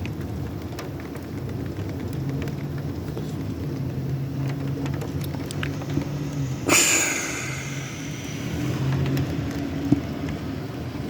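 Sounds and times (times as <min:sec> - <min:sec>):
rain pattering on a window: 0:00.0 - 0:11.0
sudden loud hiss: 0:06.4 - 0:08.9.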